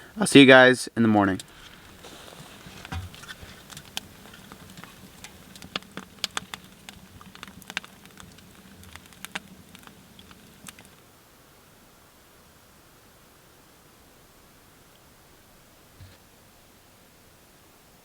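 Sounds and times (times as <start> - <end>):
wood fire crackling: 0.0 - 11.1.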